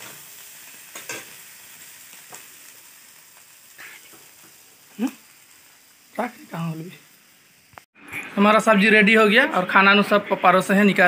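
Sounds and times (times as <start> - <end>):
curry sizzling in a pan: 0.0 - 7.9.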